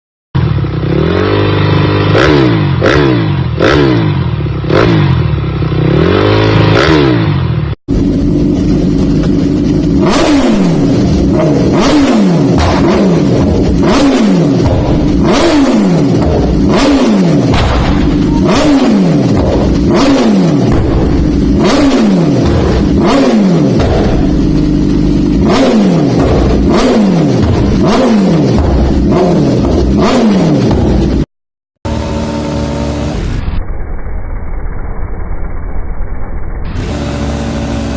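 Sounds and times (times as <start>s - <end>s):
motorcycle engines revving: 0.4s - 31.3s, 31.9s - 33.4s, 36.7s - 37.9s
exhaust cracks: 7.9s - 31.2s.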